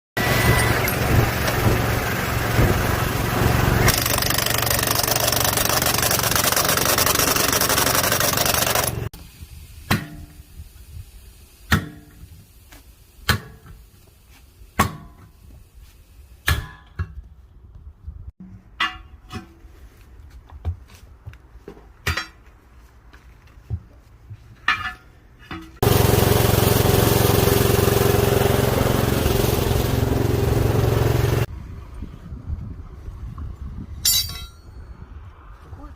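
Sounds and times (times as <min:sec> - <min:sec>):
machine humming: 0:25.8 - 0:31.5.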